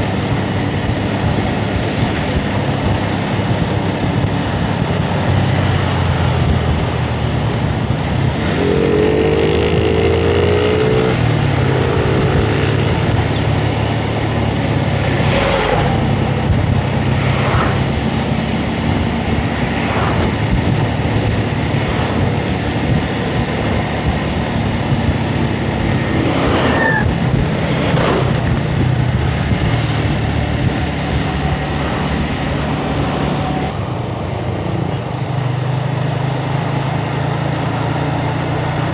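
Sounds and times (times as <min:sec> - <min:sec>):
wind on microphone: 0:00.0 - 0:35.6
motorcycle engine running: 0:00.0 - 0:38.9
person speaking: 0:26.1 - 0:29.9.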